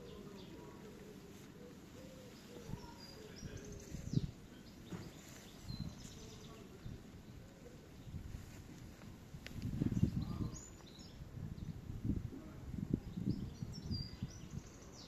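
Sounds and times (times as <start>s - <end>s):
dove cooing: 0.0s - 3.4s
small birds chirping: 0.0s - 15.0s.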